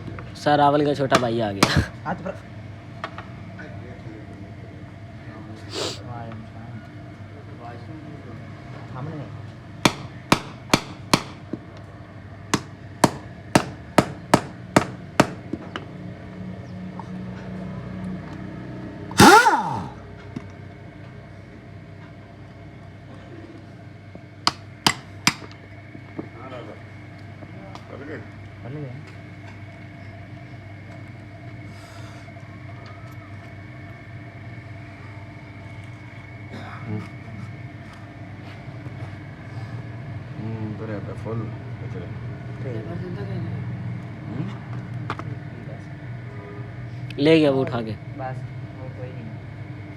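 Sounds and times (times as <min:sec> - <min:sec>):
steady mechanical hum: 0:00.0 - 0:49.9
short hiss: 0:05.7 - 0:06.0
hammer strikes: 0:09.9 - 0:11.4, 0:12.6 - 0:15.4, 0:19.2 - 0:19.9.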